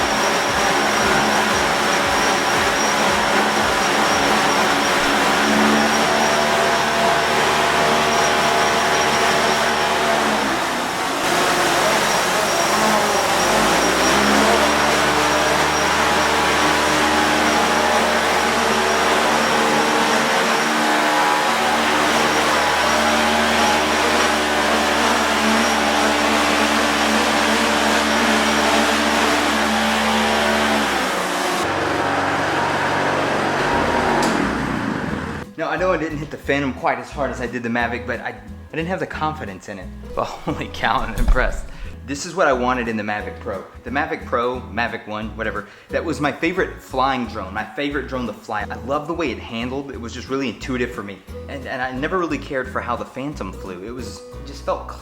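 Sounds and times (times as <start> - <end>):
drone propellers: 0.0 - 35.4, 40.1 - 42.0
small gas engine running: 0.0 - 35.5, 40.1 - 42.0.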